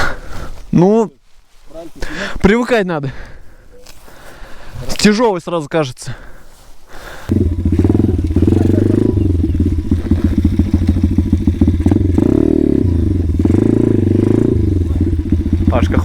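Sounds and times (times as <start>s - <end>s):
small motorcycle engine running: 7.3s - 16.0s.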